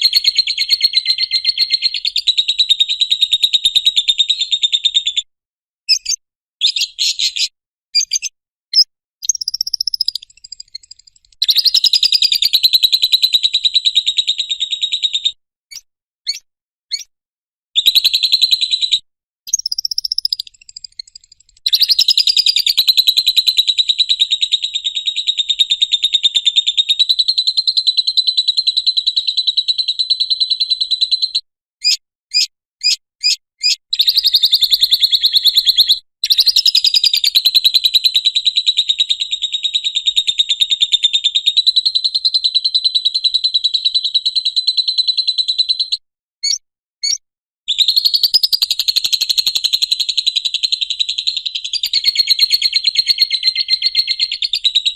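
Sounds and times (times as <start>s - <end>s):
sharp bird chirps: 0.0s - 5.3s, 5.9s - 17.1s, 17.8s - 54.9s
lovebird chattering trills: 9.2s - 12.5s, 19.5s - 22.7s.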